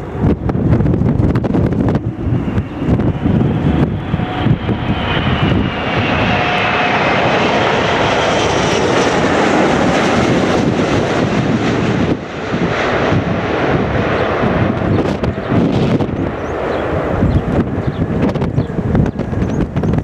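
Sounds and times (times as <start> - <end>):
jet engines running: 0.0 - 20.0
wind rumble on microphone: 0.0 - 20.0.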